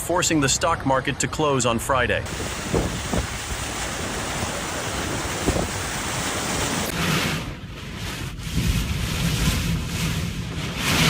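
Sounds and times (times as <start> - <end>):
strong wind: 2.2 - 11.0
surf: 2.2 - 11.0
wind buffeting microphone: 2.3 - 10.7.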